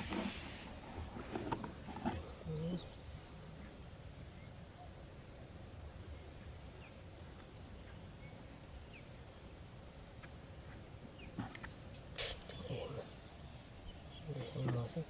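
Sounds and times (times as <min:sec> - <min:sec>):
faint bird chirps: 0:02.4 - 0:09.7, 0:11.2 - 0:15.0.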